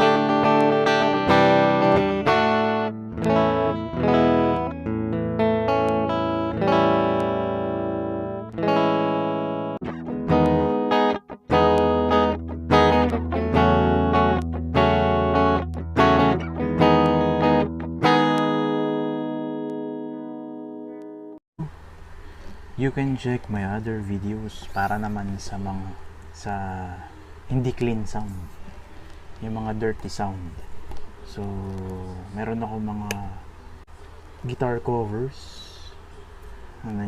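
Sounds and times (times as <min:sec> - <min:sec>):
electric guitar chords: 0:00.0 - 0:21.7.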